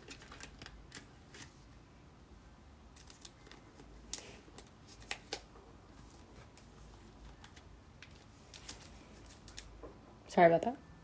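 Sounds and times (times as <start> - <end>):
cards rustling: 0.0 - 1.8, 2.9 - 9.8.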